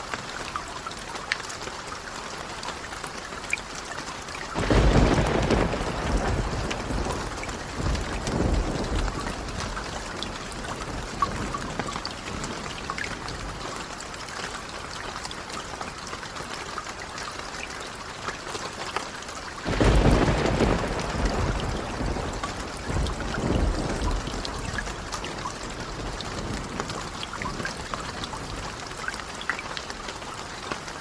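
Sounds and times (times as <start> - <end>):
steady rain falling: 0.0 - 31.0
thunder rumbling: 4.6 - 13.6, 19.6 - 29.0.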